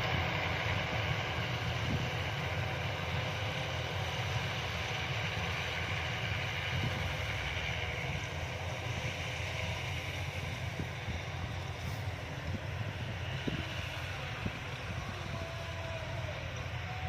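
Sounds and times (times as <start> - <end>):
combine harvester droning: 0.0 - 17.0.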